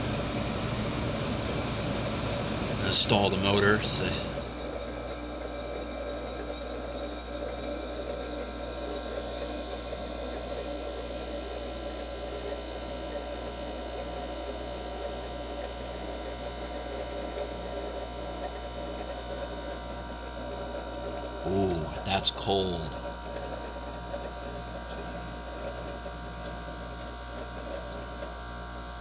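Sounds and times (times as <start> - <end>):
air conditioner humming: 0.0 - 7.0, 21.3 - 23.5.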